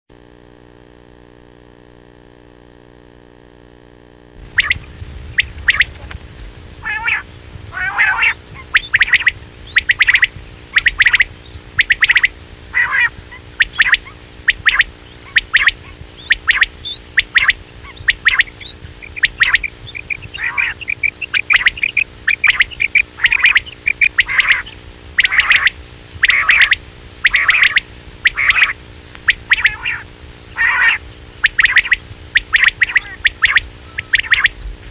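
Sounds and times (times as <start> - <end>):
low steady hum: 0.1 - 34.9
quail calls: 4.4 - 34.9.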